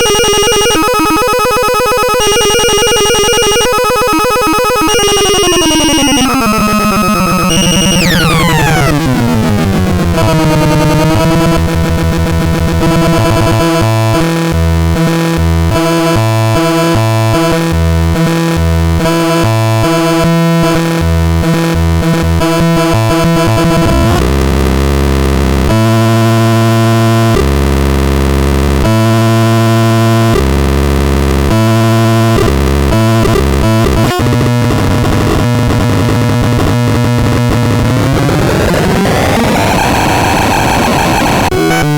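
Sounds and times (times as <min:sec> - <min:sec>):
harsh sequenced synthesizer tones: 0:00.0 - 0:14.4, 0:22.4 - 0:27.4, 0:31.5 - 0:41.9
pulsing synthesizer bass notes: 0:00.0 - 0:41.9.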